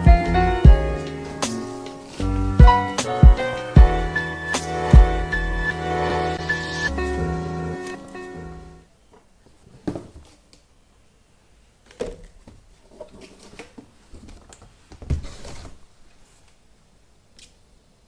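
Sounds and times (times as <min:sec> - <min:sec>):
background music: 0:00.0 - 0:08.9.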